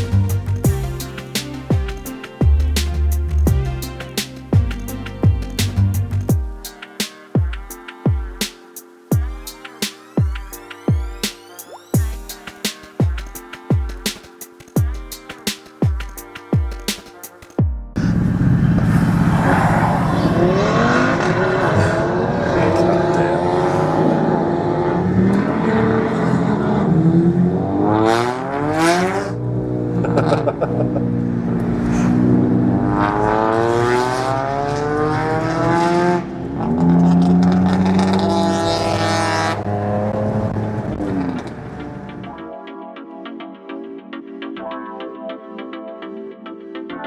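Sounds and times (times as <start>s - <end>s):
car engine revving: 18.0s - 42.3s.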